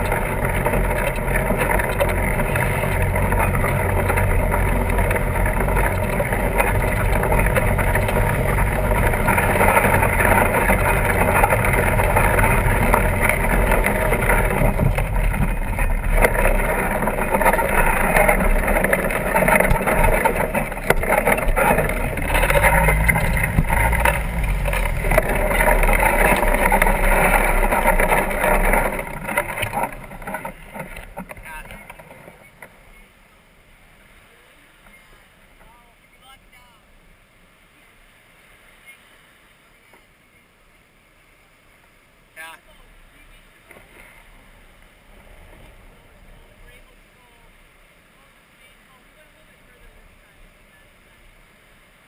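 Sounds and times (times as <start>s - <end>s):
bike tires rolling over ground: 0.0s - 33.2s, 43.1s - 47.6s.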